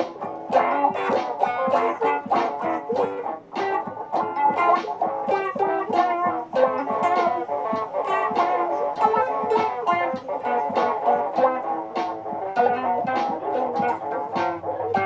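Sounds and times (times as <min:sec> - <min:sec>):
electric guitars playing: 0:00.0 - 0:15.0.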